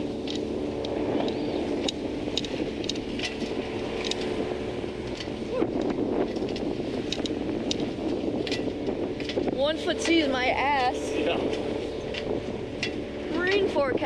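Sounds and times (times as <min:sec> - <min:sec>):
outboard motor running: 0:00.0 - 0:14.0
wind noise: 0:00.0 - 0:14.0.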